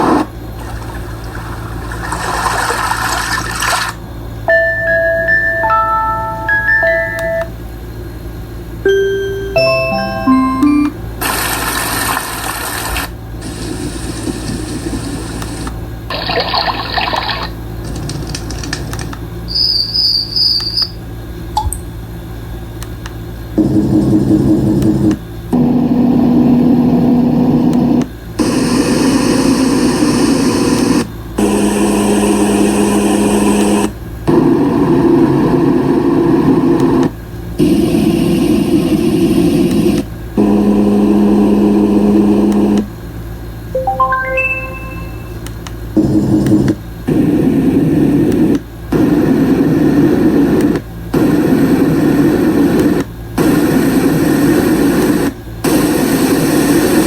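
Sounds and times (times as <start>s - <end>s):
fan-like noise with low hum: 0.0s - 44.1s.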